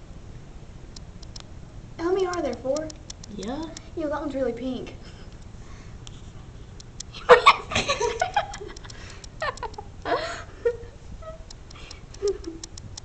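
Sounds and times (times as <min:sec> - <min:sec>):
people laughing: 0:07.2 - 0:08.8.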